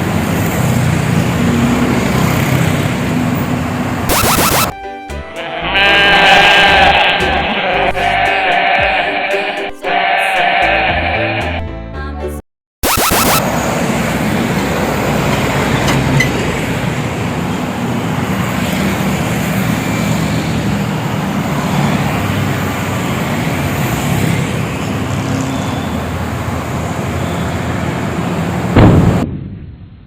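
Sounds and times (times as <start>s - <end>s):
tyre and traffic noise: 0.0s - 4.1s, 13.4s - 29.2s
truck engine drone: 12.8s - 28.7s.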